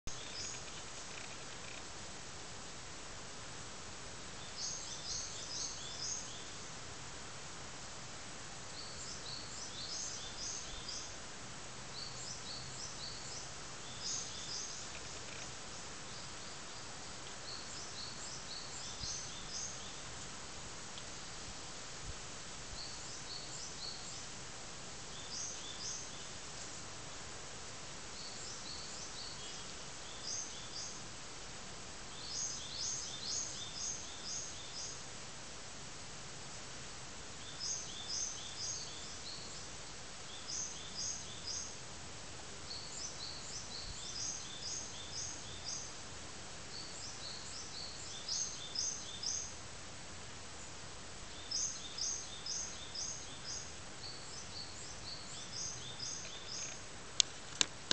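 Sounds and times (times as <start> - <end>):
faint background hiss: 0.0 - 57.9
small birds calling: 0.1 - 1.9, 4.3 - 6.7, 8.7 - 11.3, 11.9 - 20.2, 50.5 - 57.9.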